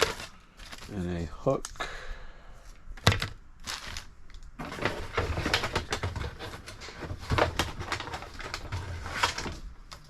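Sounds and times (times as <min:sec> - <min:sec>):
rustling of packaging: 0:00.0 - 0:01.3, 0:03.0 - 0:10.0
plastic toy parts clattering: 0:03.0 - 0:10.0.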